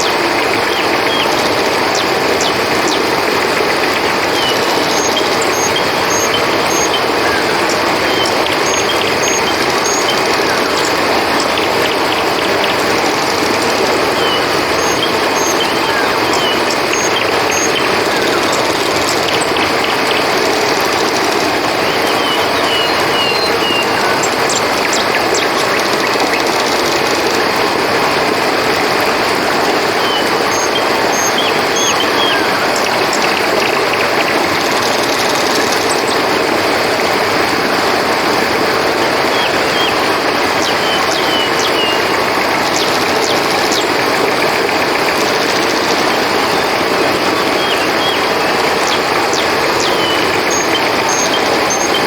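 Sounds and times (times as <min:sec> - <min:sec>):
river flowing: 0:00.0 - 0:52.0.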